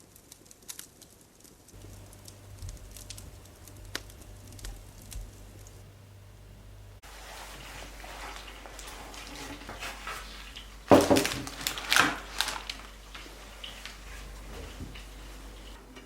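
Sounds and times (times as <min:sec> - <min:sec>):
dishes rustling and scraping: 0:01.8 - 0:16.0
dishes knocking: 0:10.9 - 0:11.4.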